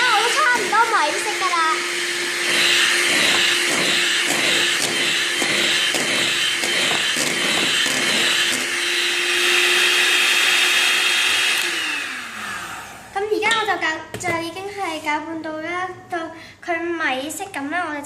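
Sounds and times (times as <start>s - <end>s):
electric mixer running: 0.0s - 13.3s.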